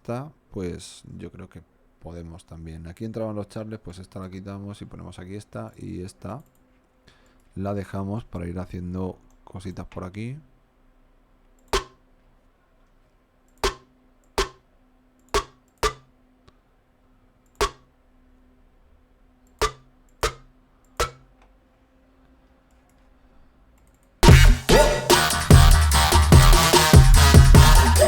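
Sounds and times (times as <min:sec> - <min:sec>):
electronic drum hits: 0:11.8 - 0:12.0, 0:14.4 - 0:14.6, 0:15.4 - 0:16.0, 0:17.6 - 0:17.8, 0:24.2 - 0:28.0
loud dubstep music: 0:24.2 - 0:28.0.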